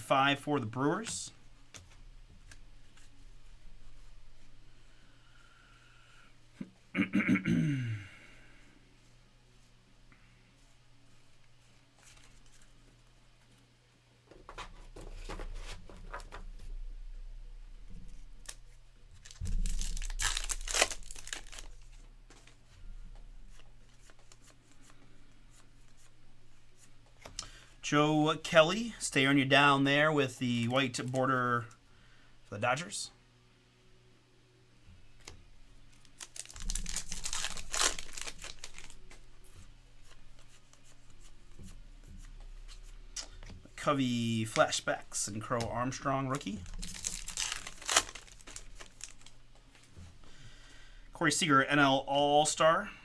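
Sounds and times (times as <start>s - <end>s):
wrapper tearing and crinkling: 19.2s - 22.0s, 36.0s - 39.1s, 46.4s - 49.4s.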